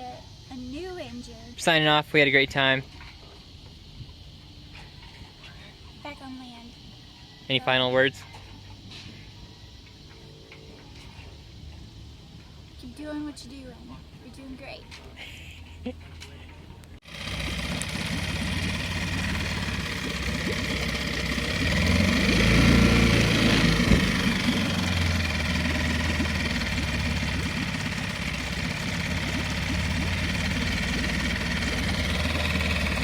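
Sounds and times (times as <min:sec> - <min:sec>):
engine running: 0:16.0 - 0:33.0.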